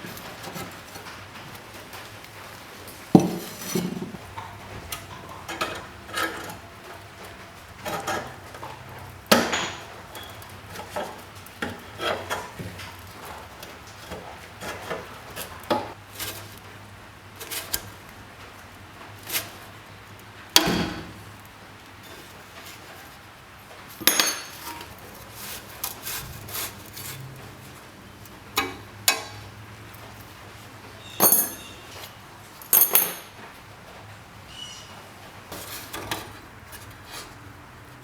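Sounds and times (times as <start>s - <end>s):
metal parts clinking and clattering: 9.3s - 10.8s, 24.0s - 24.9s, 31.2s - 33.5s.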